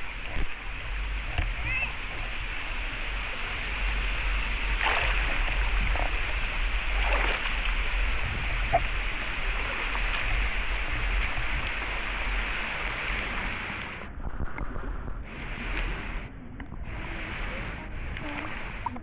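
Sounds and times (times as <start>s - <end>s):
stream flowing: 0.0s - 19.0s.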